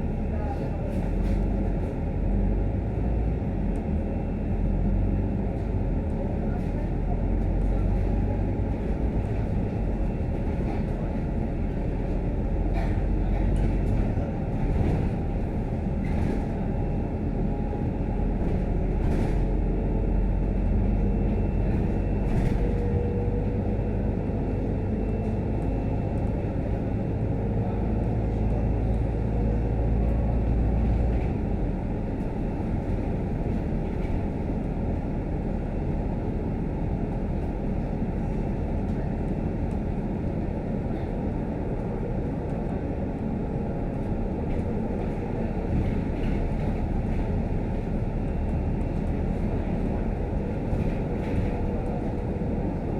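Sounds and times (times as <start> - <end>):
bus engine and road rumble: 0.0 - 52.9.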